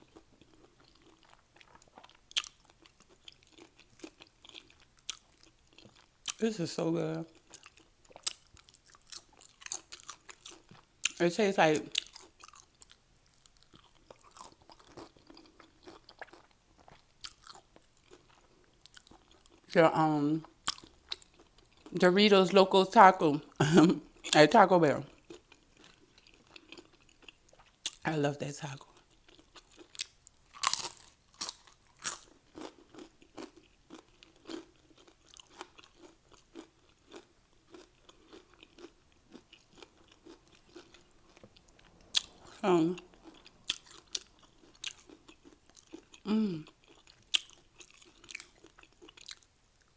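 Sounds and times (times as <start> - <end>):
chewing crunchy chips: 0.0 - 6.5, 7.2 - 11.2, 11.8 - 19.7, 20.4 - 22.0, 25.0 - 28.1, 28.7 - 49.9.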